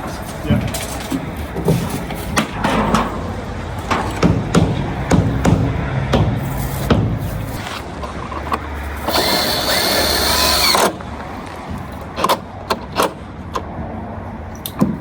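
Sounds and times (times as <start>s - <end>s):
sharp knocks: 1.6s - 7.4s, 14.8s - 15.0s
power drill whining: 9.0s - 11.0s.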